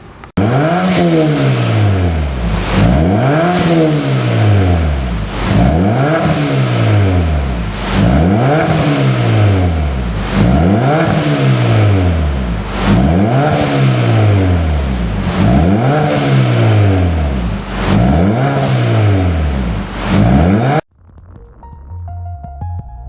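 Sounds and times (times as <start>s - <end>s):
car engine revving: 0.0s - 22.6s.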